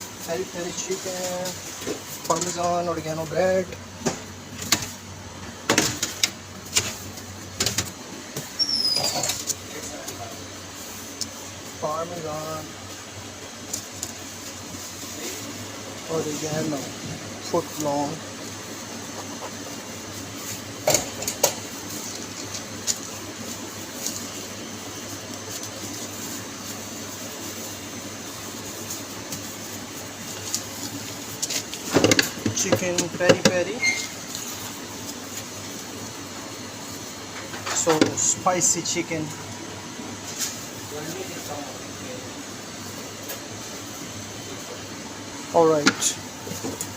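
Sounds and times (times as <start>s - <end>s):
machinery humming: 0.0s - 46.9s
brief high squeak: 8.6s - 9.2s, 33.8s - 34.2s.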